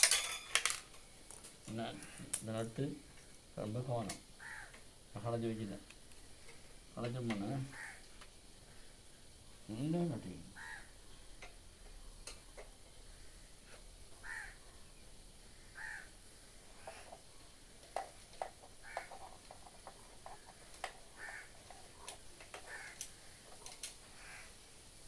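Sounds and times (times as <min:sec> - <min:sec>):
bird calling: 0:04.4 - 0:04.8, 0:07.5 - 0:08.9, 0:10.5 - 0:11.2, 0:14.2 - 0:14.9, 0:15.5 - 0:17.1, 0:20.5 - 0:24.6.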